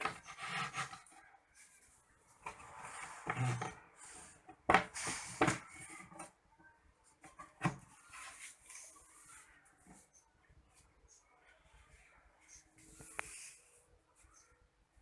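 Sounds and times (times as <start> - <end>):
scraping and rubbing: 0.0 - 6.4.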